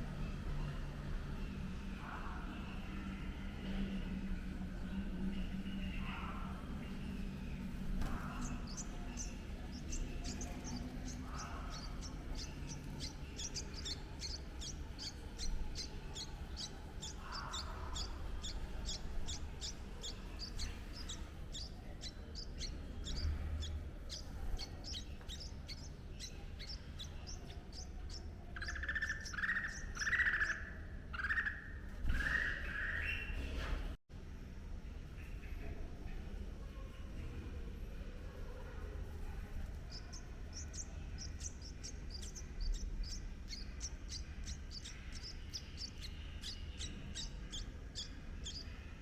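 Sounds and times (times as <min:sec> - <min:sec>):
birds chirping: 0:00.0 - 0:33.8, 0:35.0 - 0:49.0
lower bird calls: 0:04.8 - 0:33.5, 0:39.3 - 0:49.0.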